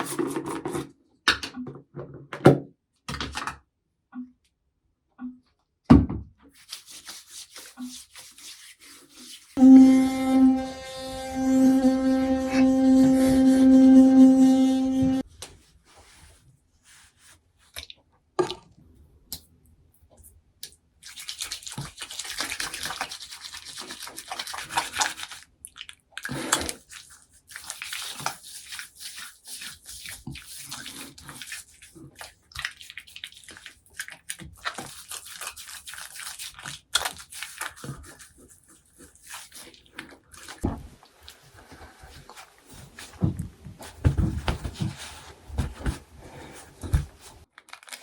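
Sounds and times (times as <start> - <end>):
toothbrush scrubbing: 6.6 - 15.2, 21.0 - 25.5, 26.2 - 40.6.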